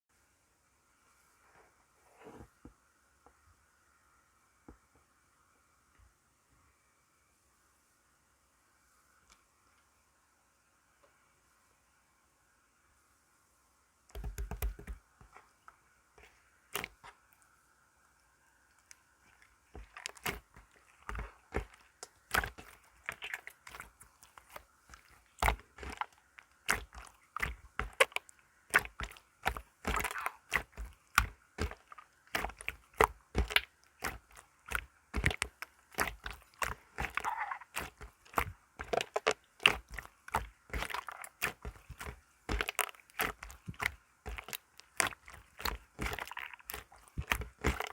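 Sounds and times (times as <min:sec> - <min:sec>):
crunchy material crackling: 0:18.8 - 0:47.9.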